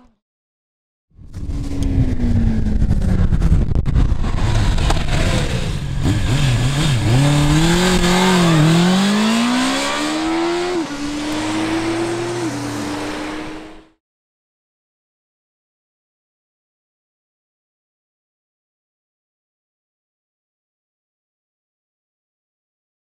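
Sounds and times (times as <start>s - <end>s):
motorcycle engine revving: 1.2s - 14.0s.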